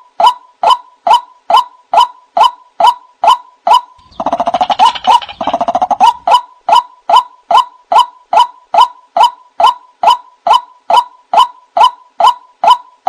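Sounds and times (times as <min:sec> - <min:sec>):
bird repeated two-part calls: 0:00.6 - 0:12.8
harsh bird chatter: 0:04.0 - 0:06.4.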